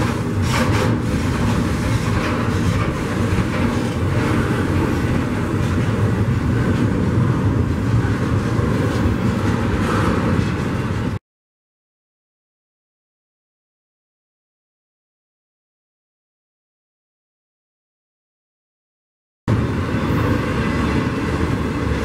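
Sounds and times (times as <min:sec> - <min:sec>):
steel wheels rumbling on rail: 0:00.0 - 0:11.2, 0:19.5 - 0:22.0.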